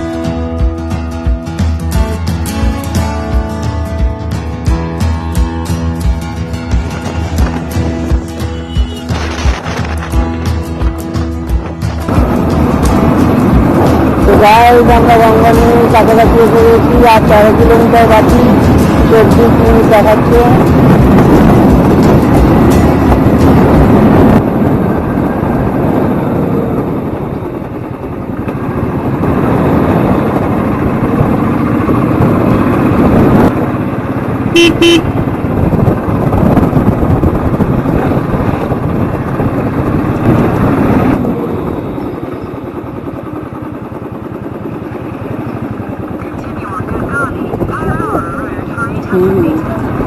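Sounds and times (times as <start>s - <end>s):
motorcycle engine running: 0.0s - 50.0s
horn toots: 8.4s - 9.2s, 34.5s - 35.2s.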